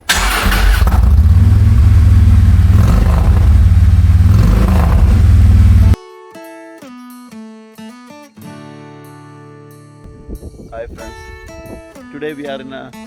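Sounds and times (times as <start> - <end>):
truck engine rumbling: 0.0 - 6.0.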